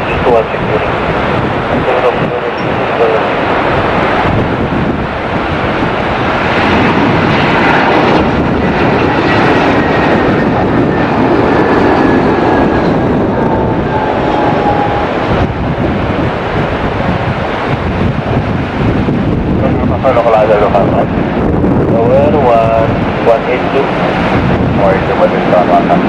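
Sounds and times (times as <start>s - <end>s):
airliner engine rush: 0.0s - 26.0s
faint engine whine: 0.0s - 26.0s.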